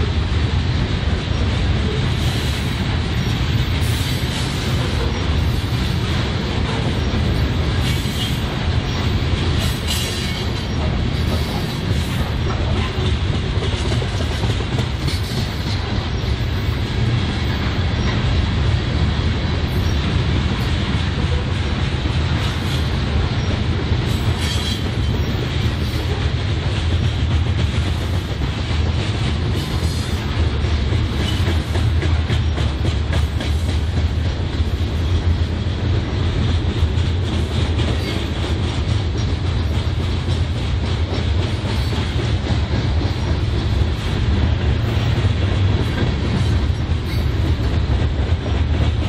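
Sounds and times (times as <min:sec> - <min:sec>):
steel wheels rumbling on rails: 0:00.0 - 0:49.0
wheels clicking over rail joints: 0:03.1 - 0:18.3.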